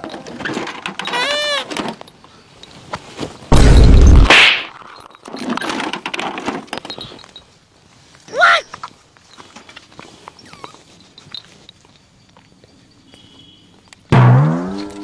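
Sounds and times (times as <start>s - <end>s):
loud crash-like blast: 3.5s - 4.6s.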